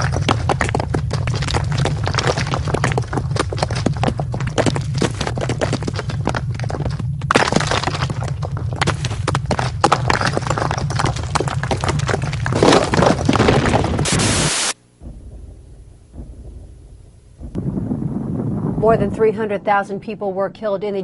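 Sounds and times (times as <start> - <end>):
objects rattling and breaking: 0.0 - 14.3
low rumble: 0.0 - 20.6.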